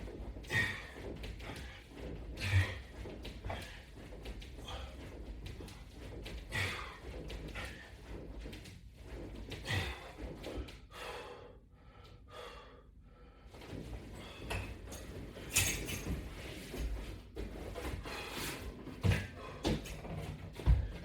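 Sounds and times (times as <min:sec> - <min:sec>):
person breathing hard: 0:00.4 - 0:04.0, 0:06.4 - 0:08.1, 0:09.6 - 0:14.6.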